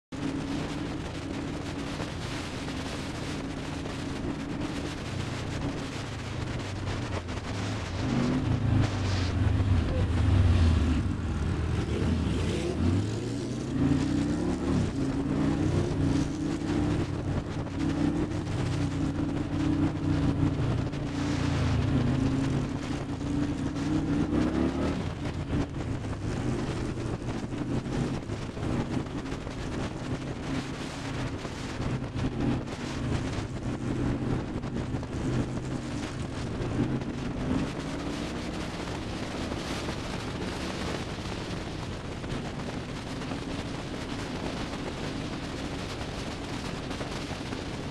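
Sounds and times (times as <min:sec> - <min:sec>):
motorcycle engine revving: 0:07.8 - 0:26.9.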